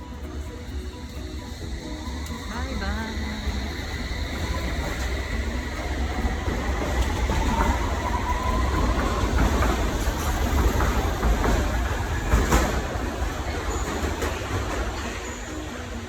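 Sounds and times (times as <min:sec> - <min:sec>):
faint whine: 0:00.0 - 0:09.4.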